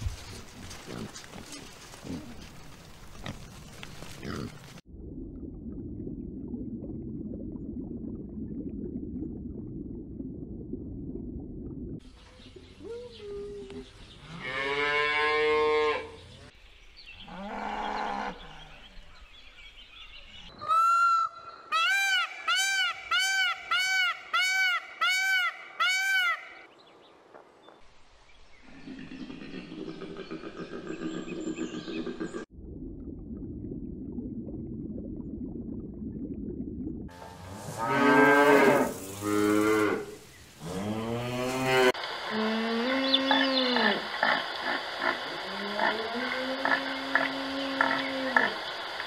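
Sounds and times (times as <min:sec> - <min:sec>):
aquarium water bubbling: 0:04.9 - 0:12.7, 0:32.4 - 0:39.0
peacock calling: 0:20.5 - 0:26.7.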